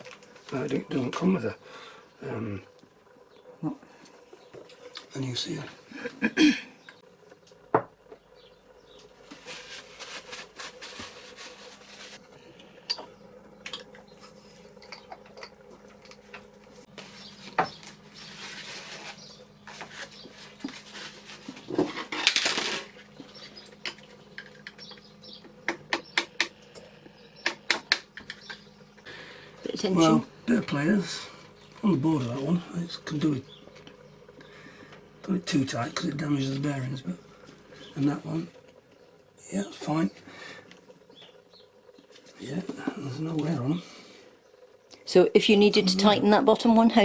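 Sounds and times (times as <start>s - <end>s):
faint steady hum: 0.0s - 47.0s
rustling scrapes: 9.2s - 12.2s, 16.9s - 23.0s.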